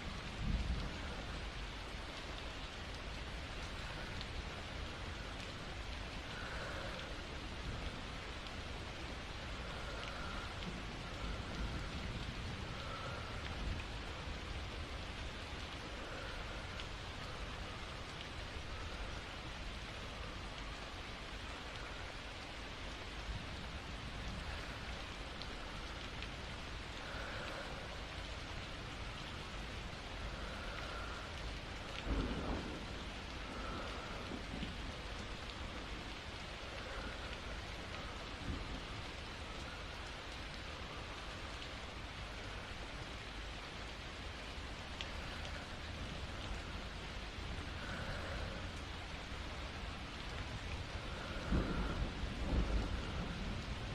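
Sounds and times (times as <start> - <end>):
steady rain: 0.0 - 53.9
thunder rumbling: 28.7 - 36.0, 49.6 - 53.9.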